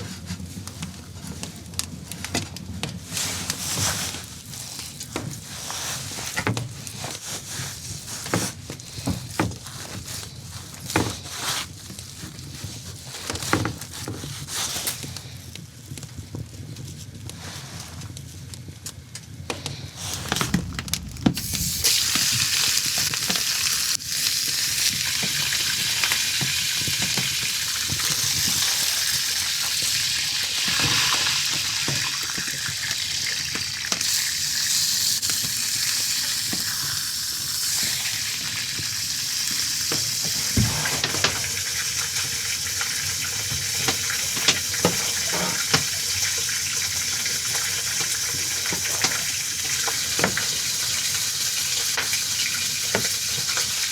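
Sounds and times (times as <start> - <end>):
food sizzling in frying pan: 20.0 - 53.9.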